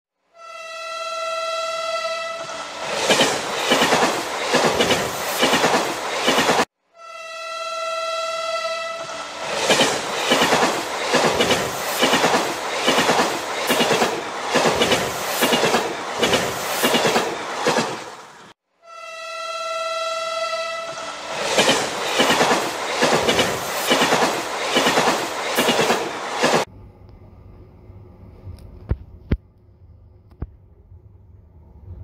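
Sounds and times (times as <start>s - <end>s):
train horn: 0.2s - 2.8s, 6.8s - 9.5s, 18.7s - 21.4s
train wheels clickety-clack: 2.9s - 6.7s, 9.5s - 18.4s, 21.4s - 26.7s.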